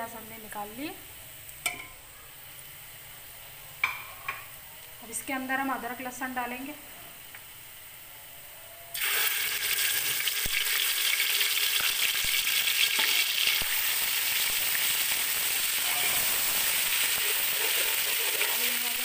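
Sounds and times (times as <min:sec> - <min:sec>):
paste sizzling in hot fat: 0:08.9 - 0:19.0.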